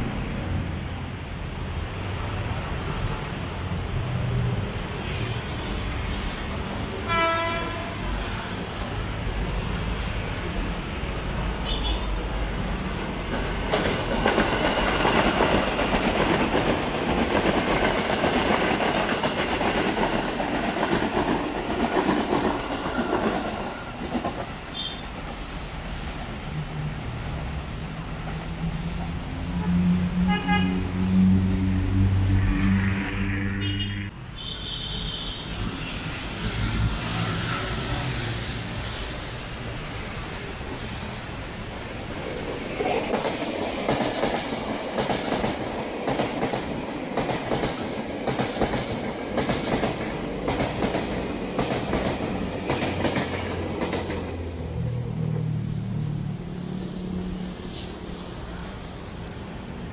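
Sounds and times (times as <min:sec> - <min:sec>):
electric train approaching: 0:00.0 - 0:34.1, 0:35.1 - 0:59.9
rumble of vehicles: 0:00.0 - 0:59.9
train wheels clattering on rails: 0:13.1 - 0:25.7, 0:42.2 - 0:54.5.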